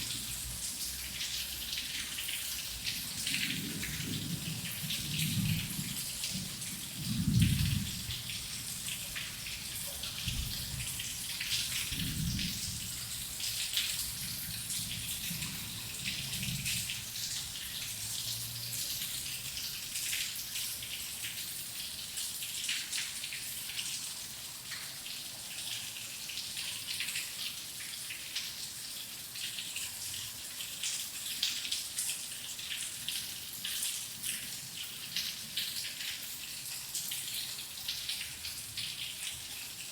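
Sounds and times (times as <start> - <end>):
rain patter: 0.0 - 39.9
low thunder roll: 3.5 - 8.3.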